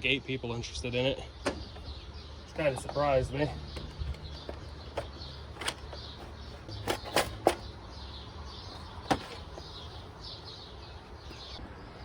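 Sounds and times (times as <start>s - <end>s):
sharp clicks of engine parts: 3.7s - 7.8s.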